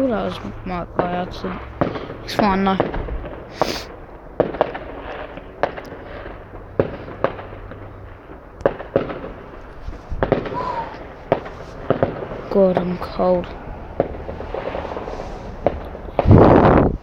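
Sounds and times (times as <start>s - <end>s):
firework bangs: 0.0s - 17.0s
fireworks crackling: 0.0s - 17.0s
firework whistle: 3.5s - 4.0s.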